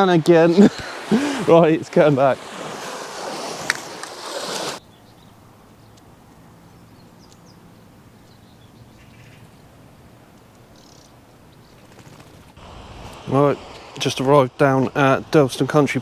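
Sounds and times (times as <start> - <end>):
sea and wind wash: 0.0 - 4.8, 12.5 - 16.0
faint steady hiss: 0.0 - 16.0
faint bird chirps: 6.7 - 9.7, 10.7 - 12.2.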